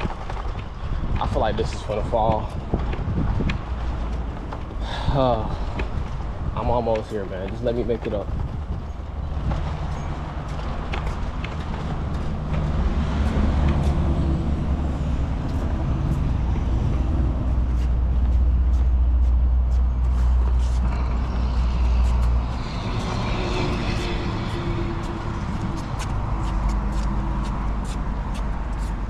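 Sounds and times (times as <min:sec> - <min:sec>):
diesel truck engine rumbling: 0:00.0 - 0:29.0.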